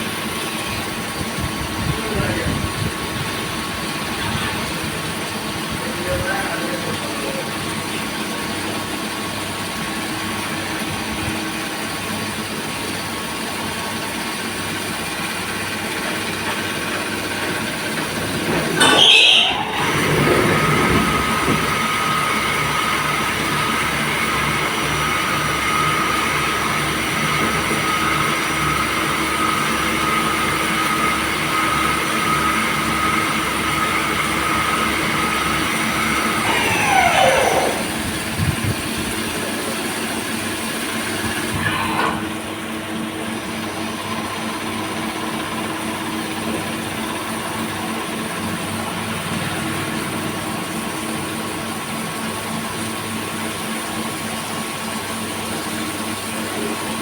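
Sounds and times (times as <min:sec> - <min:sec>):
lathe machine hum and whine: 0:00.0 - 0:57.0.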